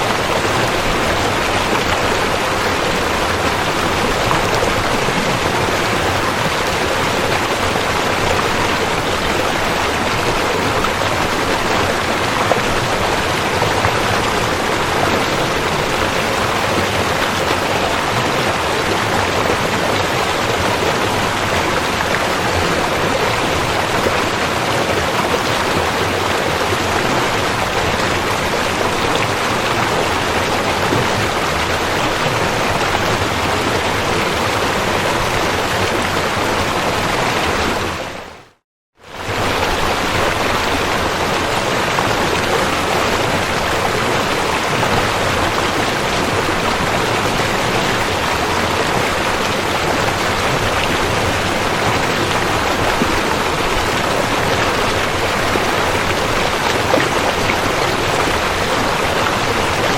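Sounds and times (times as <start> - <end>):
river water flowing over rocks: 0.0 - 59.9.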